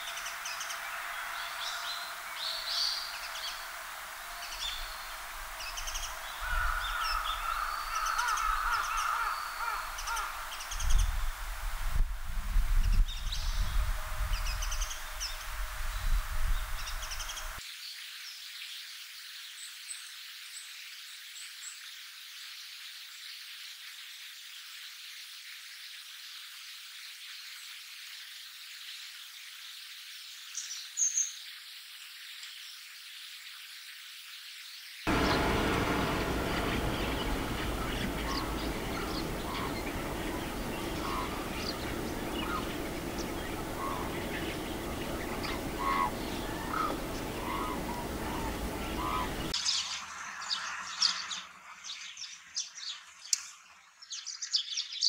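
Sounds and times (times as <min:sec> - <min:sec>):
thin high bird calls: 0:00.0 - 0:11.1, 0:35.1 - 0:53.0
starlings calling: 0:00.0 - 0:11.2, 0:35.1 - 0:52.8
low rumble: 0:35.1 - 0:49.6.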